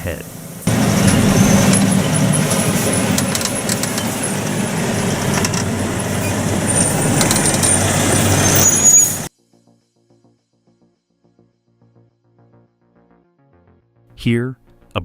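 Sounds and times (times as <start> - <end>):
truck engine and road rumble: 0.0 - 9.3
rattling clicks: 0.7 - 9.3
brief high squeals: 6.1 - 9.3.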